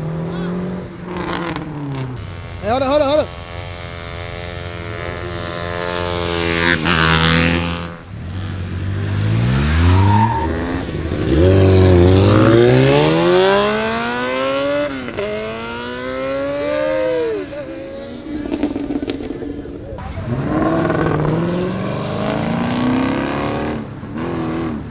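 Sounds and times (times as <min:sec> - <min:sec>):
car engine accelerating hard: 0:00.0 - 0:24.9.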